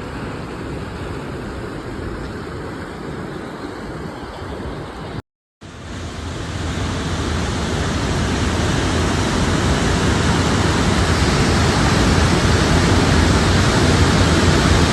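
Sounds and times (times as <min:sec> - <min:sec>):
heavy rain pouring: 0:05.8 - 0:14.9.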